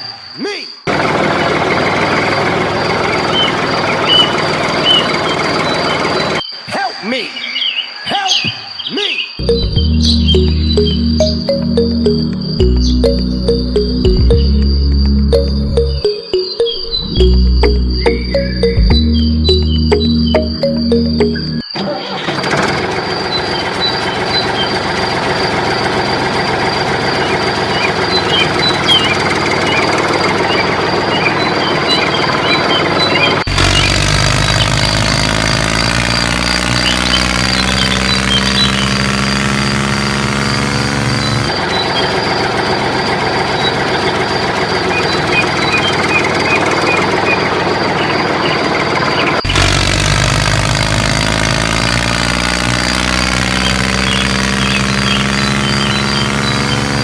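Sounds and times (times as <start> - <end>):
engine idling: 0.9 - 6.4, 22.6 - 57.0
high whine: 9.4 - 21.7.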